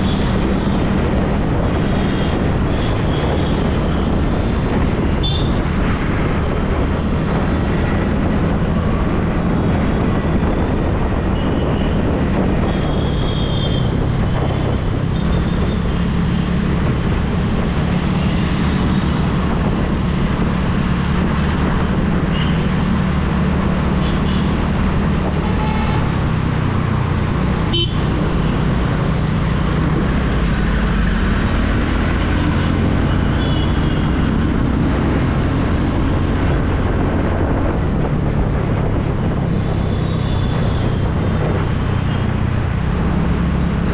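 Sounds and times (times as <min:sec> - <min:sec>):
road and traffic noise: 0:00.0 - 0:43.9
vehicle horns tooting: 0:25.4 - 0:26.2, 0:27.2 - 0:28.1, 0:33.2 - 0:34.1.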